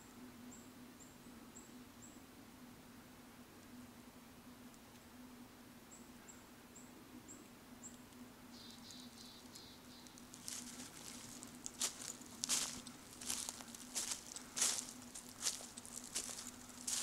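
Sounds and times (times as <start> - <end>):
faint high bird calls: 5.9 - 11.3
bird trill: 8.6 - 10.2
footsteps on dry leaves: 10.1 - 17.0.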